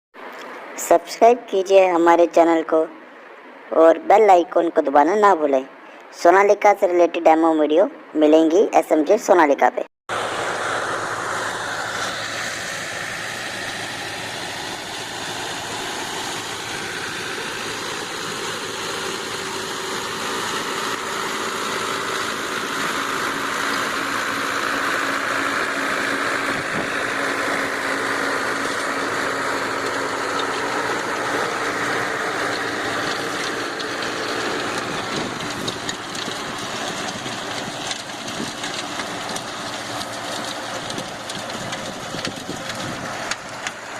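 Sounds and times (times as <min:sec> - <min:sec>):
tractor diesel engine running: 0:10.1 - 0:43.9.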